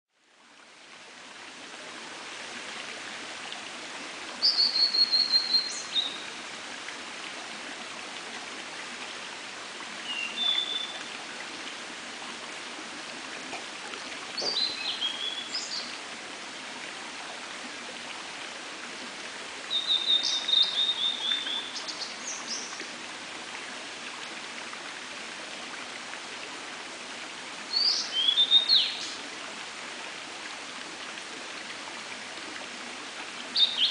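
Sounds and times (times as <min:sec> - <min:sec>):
bird singing whistled phrases: 0:10.1 - 0:11.0.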